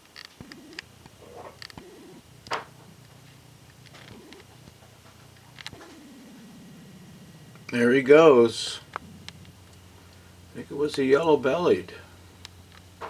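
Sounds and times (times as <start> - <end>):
bird cooing: 0.4 - 10.4.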